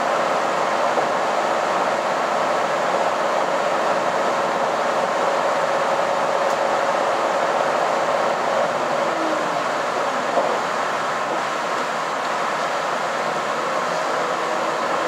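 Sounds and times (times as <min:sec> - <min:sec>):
railcar interior rushing noise: 0:00.0 - 0:15.0.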